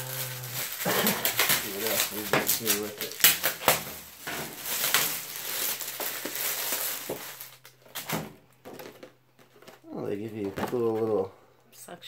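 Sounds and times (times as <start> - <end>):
paper and plastic bags rustling: 0.0 - 11.3.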